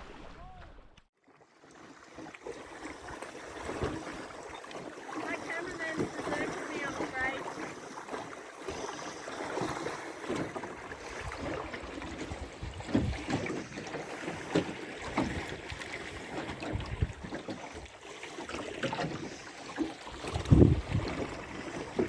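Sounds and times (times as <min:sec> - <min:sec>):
low splashes: 0:00.0 - 0:01.1, 0:01.7 - 0:22.0
water lapping against boat hull: 0:00.0 - 0:22.0
wind on microphone: 0:12.2 - 0:13.5, 0:16.6 - 0:17.3, 0:20.2 - 0:22.0.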